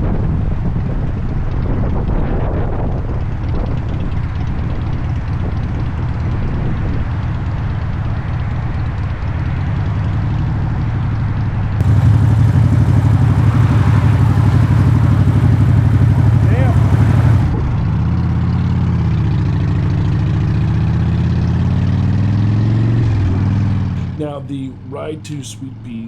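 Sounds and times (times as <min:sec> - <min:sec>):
motorcycle engine running: 0:11.8 - 0:17.6.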